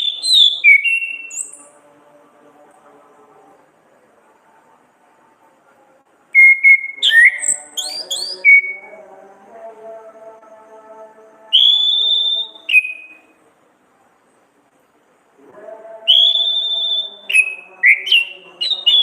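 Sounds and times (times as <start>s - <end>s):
thrush singing whistled notes: 0.0s - 1.8s, 6.4s - 9.0s, 11.5s - 13.4s, 16.1s - 19.0s.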